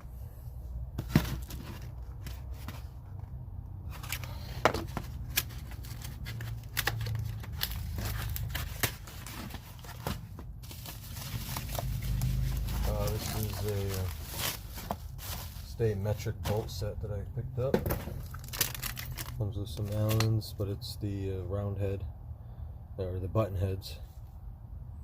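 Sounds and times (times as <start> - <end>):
packaging crinkling and tearing: 4.0 - 15.8, 18.1 - 20.4.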